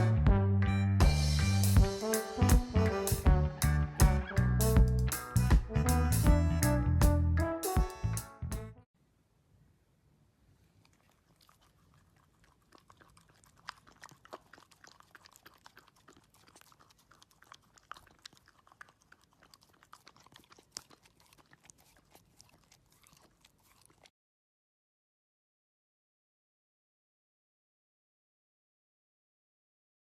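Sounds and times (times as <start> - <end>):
dog chewing and crunching food: 10.6 - 24.1.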